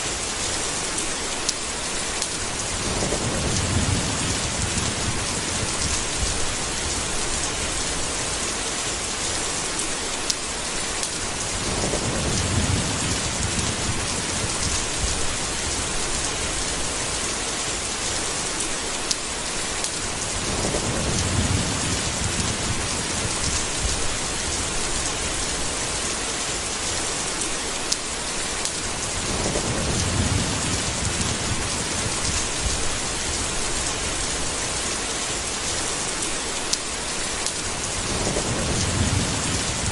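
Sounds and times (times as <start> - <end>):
heavy rain: 0.0 - 39.9
low thunder rumbles: 2.6 - 8.4, 11.3 - 18.2, 20.1 - 26.1, 28.8 - 34.9, 37.7 - 39.9.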